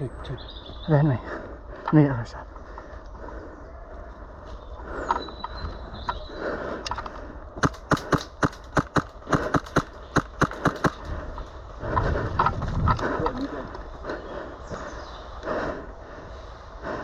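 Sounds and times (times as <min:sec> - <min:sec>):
airsoft gun firing single shots: 0:07.6 - 0:11.1.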